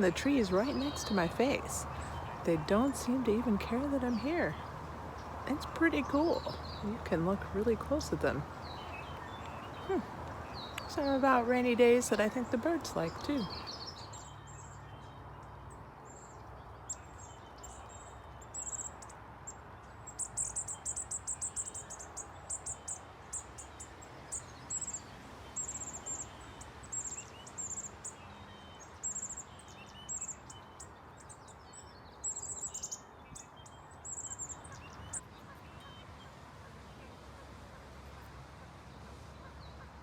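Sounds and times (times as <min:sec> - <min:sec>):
bird trill: 0:00.0 - 0:19.1
songbirds chipping: 0:00.0 - 0:40.0.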